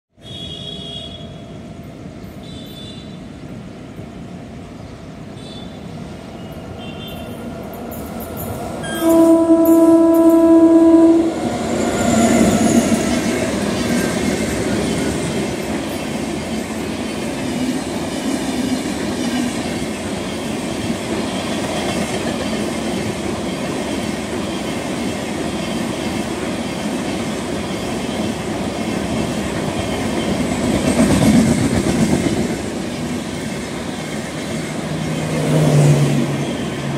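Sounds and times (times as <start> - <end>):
train horn blast: 8.8 - 11.6
train wheels clickety-clack: 11.9 - 36.2.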